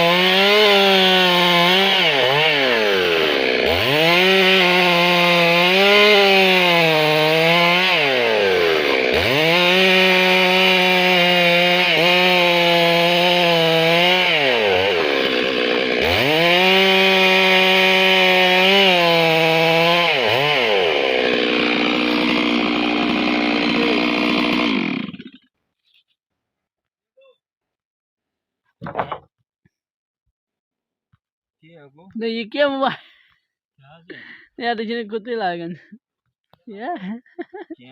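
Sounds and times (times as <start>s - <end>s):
chainsaw revving: 0.0s - 25.4s.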